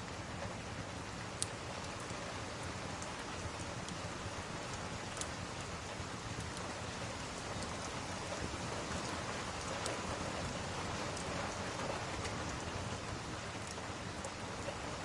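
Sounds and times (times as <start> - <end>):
steady rain falling: 0.0 - 15.0
faint sharp ticks: 4.6 - 5.4, 6.4 - 6.7, 7.4 - 12.7.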